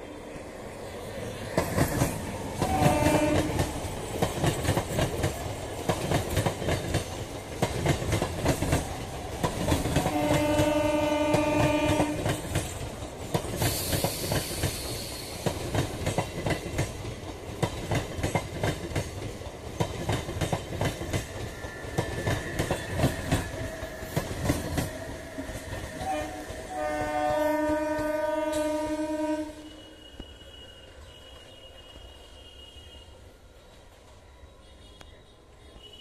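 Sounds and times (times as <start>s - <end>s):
train horn: 2.6s - 3.7s, 10.0s - 12.4s, 26.0s - 33.3s, 34.5s - 36.0s.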